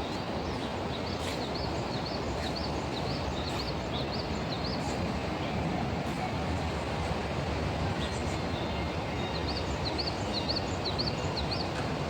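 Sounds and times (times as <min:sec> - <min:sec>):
low background noise: 0:00.0 - 0:12.0
small bird singing: 0:08.1 - 0:11.7.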